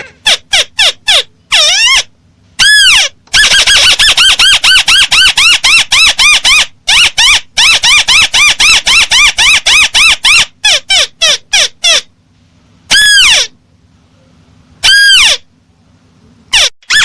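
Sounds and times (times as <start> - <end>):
crake bird call: 14.8 - 15.5.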